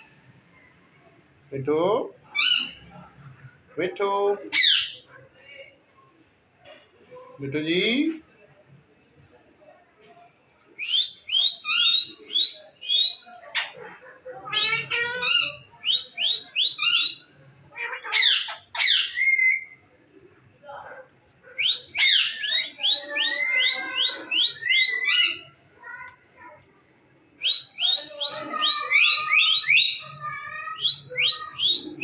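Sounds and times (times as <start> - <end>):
parrot squawks: 4.5 - 5.0, 10.8 - 19.8, 21.6 - 25.6, 27.4 - 32.0
parrot whistled chirps: 27.4 - 30.0, 30.8 - 32.0.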